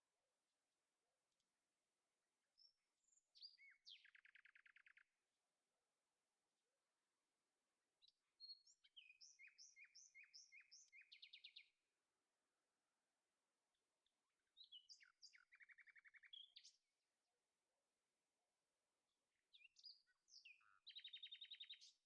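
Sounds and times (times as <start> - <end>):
songbird chirps and trills: 2.4 - 5.2, 8.0 - 11.8, 13.7 - 17.0, 19.3 - 22.0.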